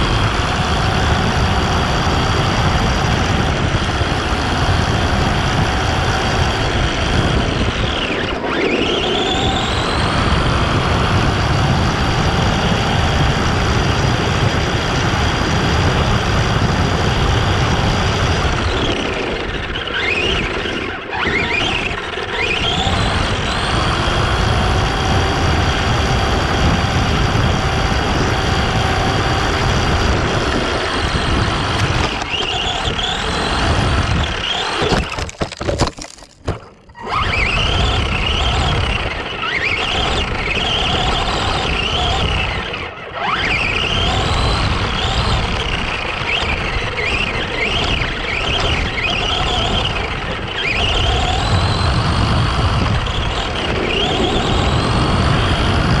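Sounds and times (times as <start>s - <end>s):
electric motor whining: 0.0s - 56.0s
tyres on rough ground: 27.5s - 55.9s.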